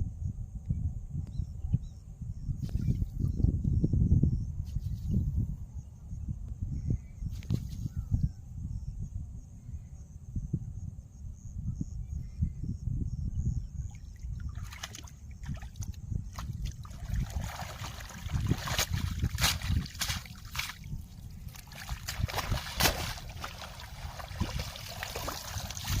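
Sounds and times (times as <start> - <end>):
water splashing and sloshing: 14.4 - 26.0.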